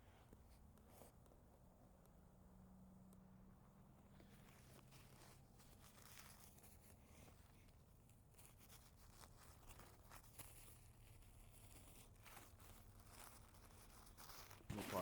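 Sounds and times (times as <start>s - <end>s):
paper tissue rustling: 4.3s - 15.0s.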